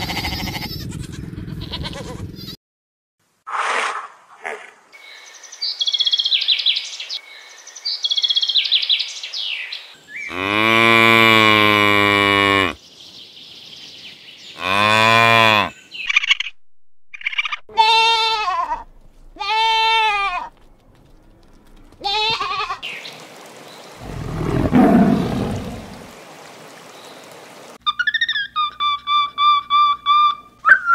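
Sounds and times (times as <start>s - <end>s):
cattle mooing: 10.3s - 12.8s, 14.6s - 15.7s, 24.0s - 26.1s.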